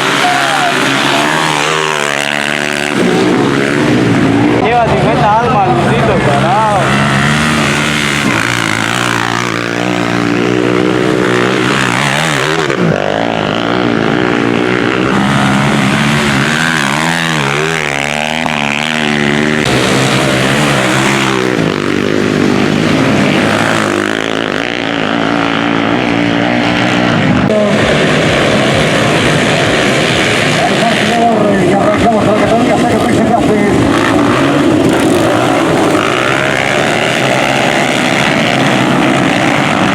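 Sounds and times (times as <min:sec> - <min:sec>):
motorcycles racing past: 0:00.0 - 0:39.9.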